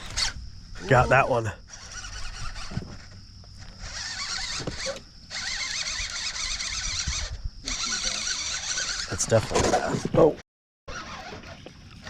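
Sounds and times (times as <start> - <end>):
fishing reel whirring: 0.0 - 9.4, 10.9 - 12.0.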